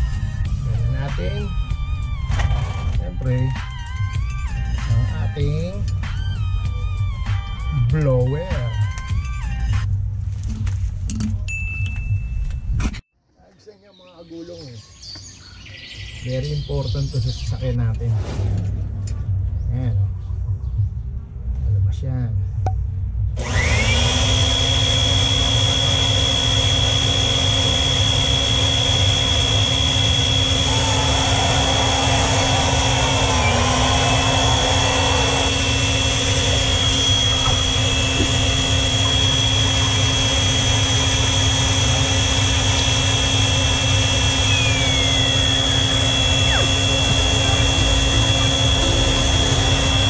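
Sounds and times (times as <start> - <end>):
electric air blower whining: 23.4 - 50.0.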